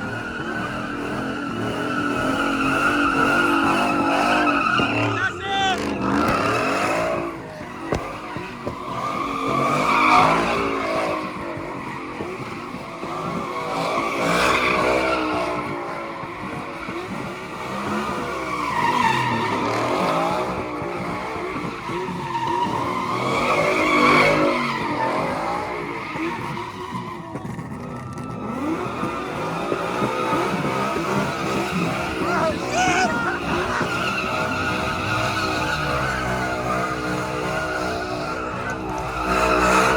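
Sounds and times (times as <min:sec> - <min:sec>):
car engine revving: 0:00.0 - 0:39.9
tires squealing: 0:00.0 - 0:39.9.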